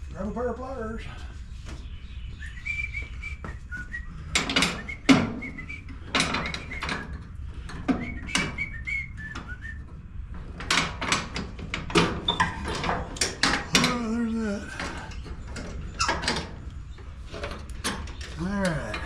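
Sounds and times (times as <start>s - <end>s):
high whistle-like chirps: 2.4s - 5.9s
metal clicks and clanks: 4.3s - 19.0s.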